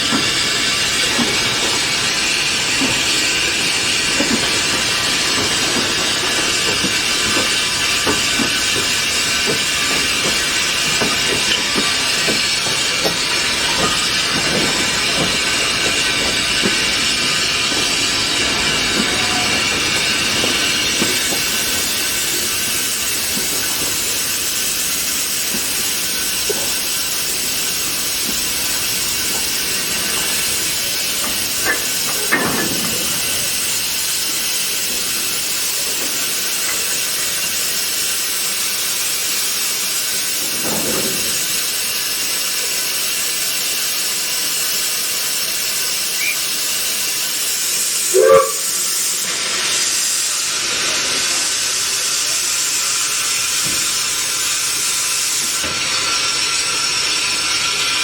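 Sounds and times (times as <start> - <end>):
steam locomotive hissing: 0.0 - 58.0.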